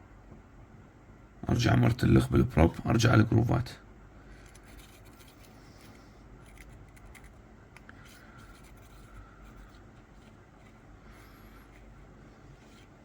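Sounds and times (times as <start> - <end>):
dental probe scratching tooth: 4.4 - 7.4, 8.0 - 10.9.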